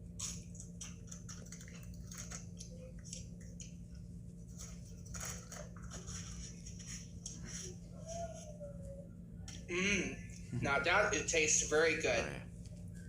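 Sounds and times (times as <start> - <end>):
tortilla chips crunching: 0.0 - 3.7, 4.5 - 6.2.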